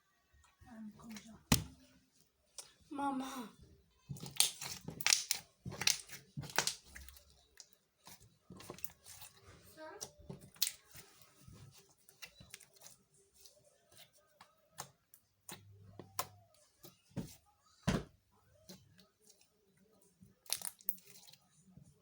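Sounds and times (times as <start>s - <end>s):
slime squishing and popping: 4.2s - 7.7s, 20.4s - 21.2s.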